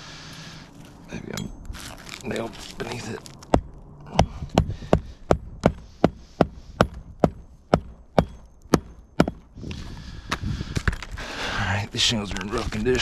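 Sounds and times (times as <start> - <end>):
hammering on a shingle roof: 3.5 - 9.6.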